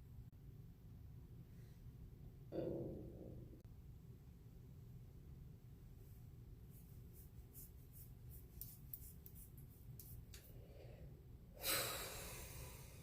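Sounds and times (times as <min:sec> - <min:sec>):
loud breathy hiss: 0:11.6 - 0:13.0.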